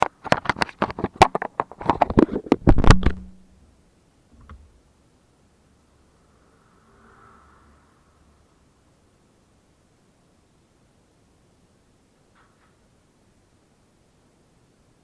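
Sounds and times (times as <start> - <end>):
sharp knocks or clicks: 0.0 - 3.4.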